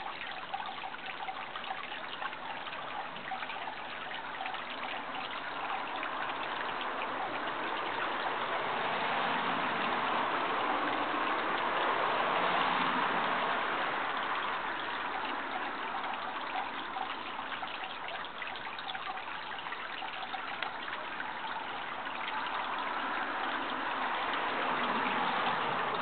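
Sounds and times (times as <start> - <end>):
running water trickling: 0.0 - 26.0.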